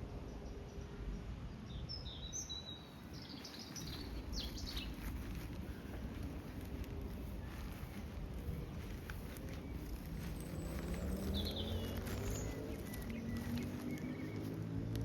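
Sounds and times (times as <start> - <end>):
low background noise: 0.0 - 15.0
small birds chirping: 1.7 - 15.0.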